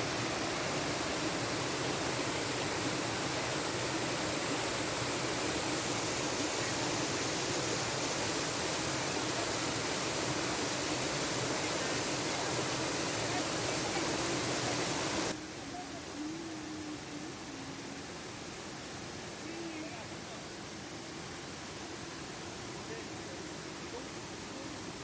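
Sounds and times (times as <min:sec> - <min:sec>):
waterfall rushing: 0:00.0 - 0:15.4.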